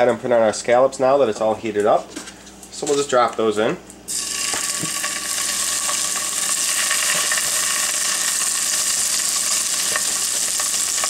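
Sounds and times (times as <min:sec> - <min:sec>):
scallops sizzling in a frying pan: 0:04.1 - 0:11.0.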